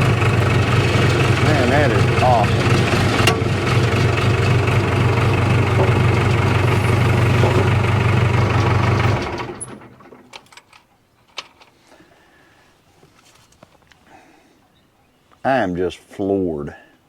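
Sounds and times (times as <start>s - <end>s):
diesel engine idling: 0.0s - 10.3s.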